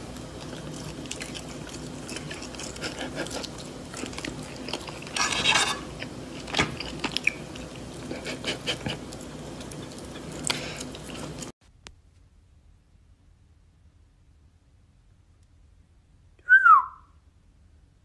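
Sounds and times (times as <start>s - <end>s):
chewing and biting: 0.0s - 5.2s, 5.8s - 11.5s
fork scraping a plate: 1.2s - 7.4s.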